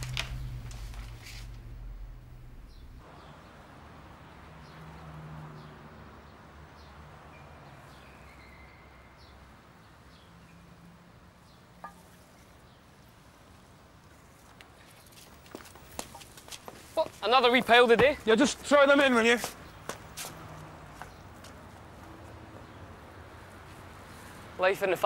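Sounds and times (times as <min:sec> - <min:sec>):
faint low hum: 0:00.0 - 0:03.0
bird chirps: 0:06.8 - 0:09.4.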